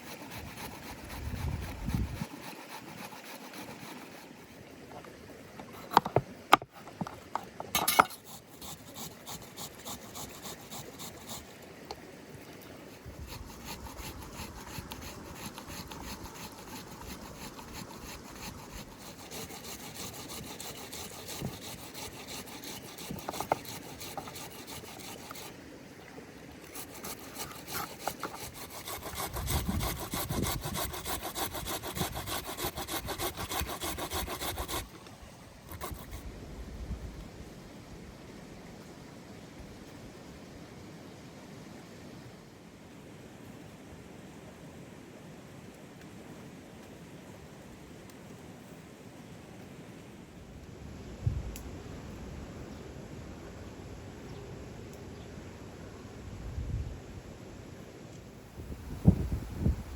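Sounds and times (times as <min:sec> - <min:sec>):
rhythmic sawing strokes: 0:00.0 - 0:04.6, 0:07.8 - 0:11.6, 0:12.9 - 0:25.6, 0:26.6 - 0:34.9, 0:35.7 - 0:36.2.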